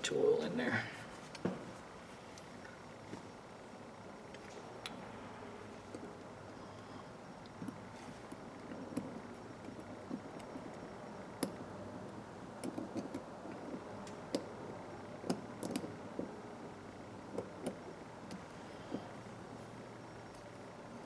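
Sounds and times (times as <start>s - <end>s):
steady low hum: 0.0s - 21.0s
small metal clicks and taps: 15.2s - 16.3s.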